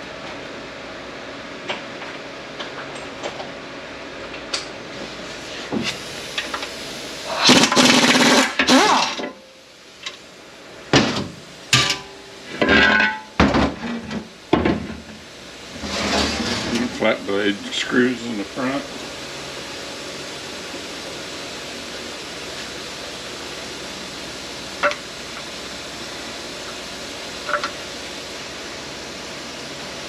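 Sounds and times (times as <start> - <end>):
background hum: 0.0 - 30.0
loud harsh burst: 7.2 - 9.2.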